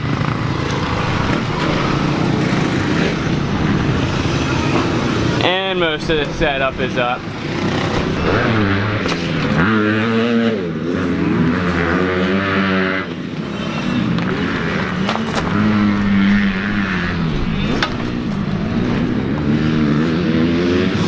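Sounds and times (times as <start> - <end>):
small motorbike engines revving: 0.0 - 21.0.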